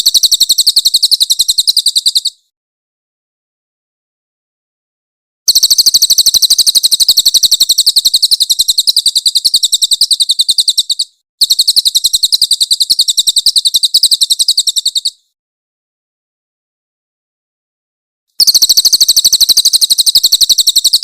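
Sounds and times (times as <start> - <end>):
bird rattling trills: 5.5 - 15.2, 18.4 - 21.0.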